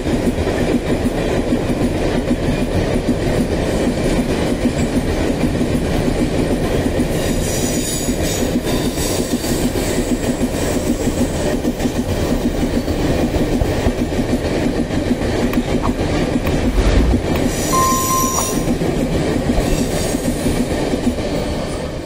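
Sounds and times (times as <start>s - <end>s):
high wheel squeals: 17.6s - 18.8s.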